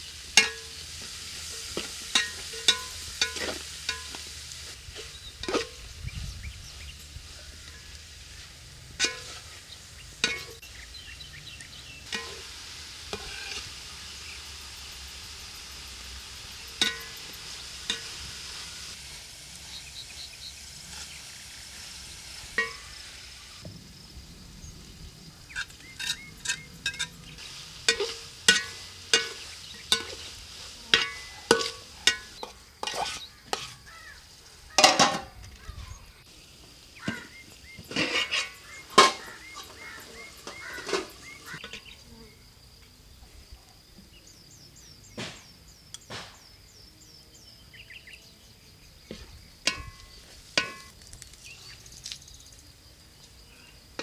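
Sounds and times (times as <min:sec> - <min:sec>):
food sizzling in a pan: 0:00.0 - 0:54.0
spoon scraping a pan: 0:00.2 - 0:05.9, 0:07.4 - 0:10.7, 0:11.7 - 0:13.8, 0:16.7 - 0:19.0, 0:19.8 - 0:23.4, 0:25.5 - 0:35.8, 0:37.0 - 0:42.3, 0:49.1 - 0:51.0.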